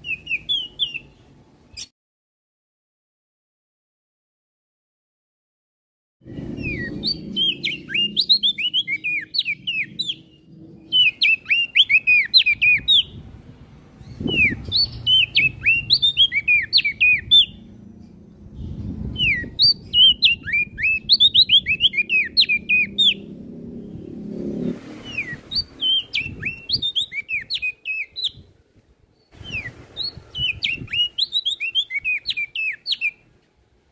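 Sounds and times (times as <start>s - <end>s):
bird chirping high notes: 6.2s - 13.2s, 14.0s - 28.4s.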